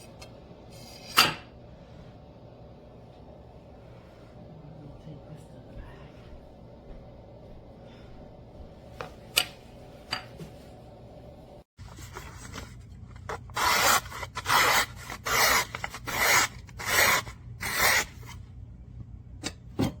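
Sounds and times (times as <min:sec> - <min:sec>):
sharpener disc rasping on knife: 0:13.6 - 0:18.2.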